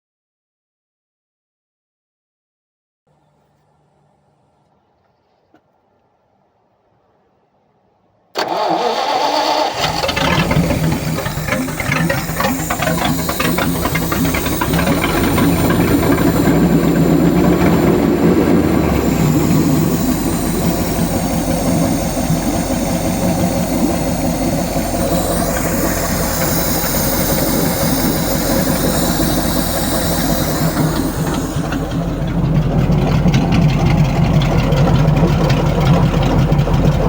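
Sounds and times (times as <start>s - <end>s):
engine running: 8.4s - 37.0s
engine starter cranking: 8.4s - 37.0s.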